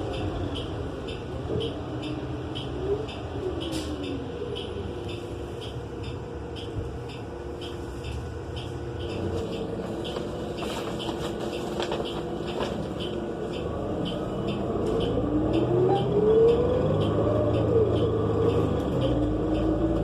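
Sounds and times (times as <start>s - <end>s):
bus engine drone: 0.0s - 20.0s
faint regular ticking: 0.0s - 20.0s.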